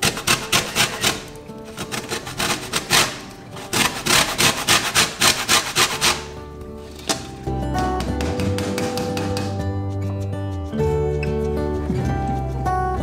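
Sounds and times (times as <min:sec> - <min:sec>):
peel rasping on grater: 0:00.0 - 0:06.3
background music: 0:00.0 - 0:13.0.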